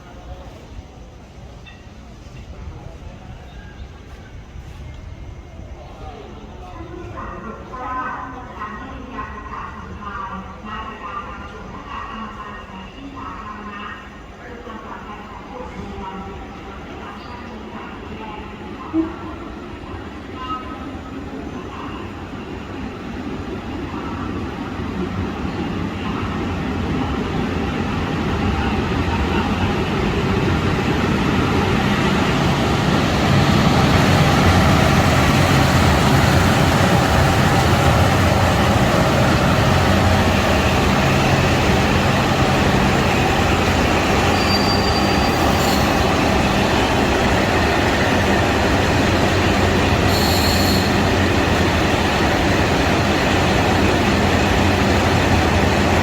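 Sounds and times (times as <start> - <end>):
diesel train running: 22.0 - 56.0
high squeals: 41.0 - 46.4, 50.0 - 51.2.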